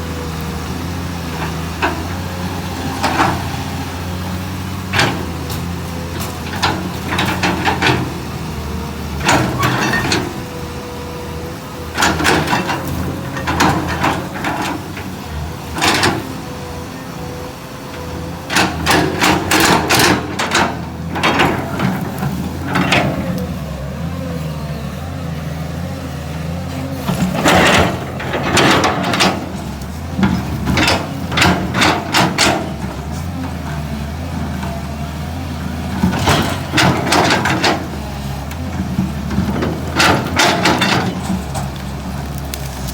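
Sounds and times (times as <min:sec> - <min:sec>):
excavator diesel engine running: 0:00.0 - 0:42.9
roots cracking and snapping: 0:41.6 - 0:42.9.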